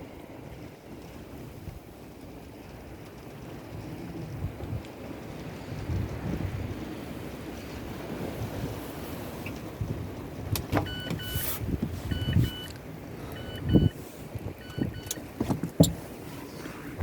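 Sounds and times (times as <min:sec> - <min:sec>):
wind buffeting microphone: 0:00.0 - 0:17.0
faint electronic double beep: 0:10.8 - 0:11.5, 0:12.1 - 0:12.7, 0:13.4 - 0:14.0, 0:14.6 - 0:15.2
thumps and clicks: 0:14.6 - 0:16.0.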